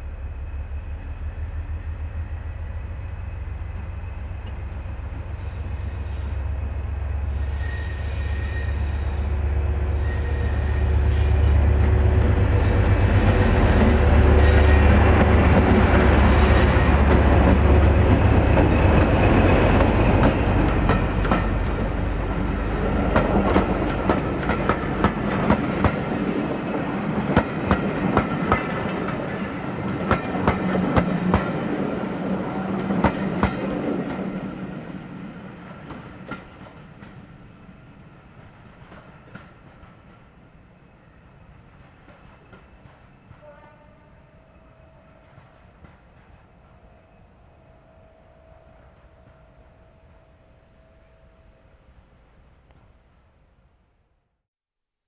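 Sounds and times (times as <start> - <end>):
diesel locomotive engine rumble: 0.0 - 53.2
train wheels clicking over rail joints: 11.1 - 31.8.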